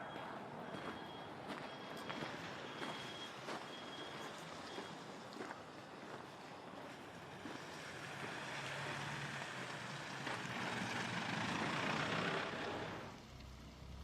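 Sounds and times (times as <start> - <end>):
road noise: 0.0 - 14.0
vehicle engine: 6.4 - 14.0.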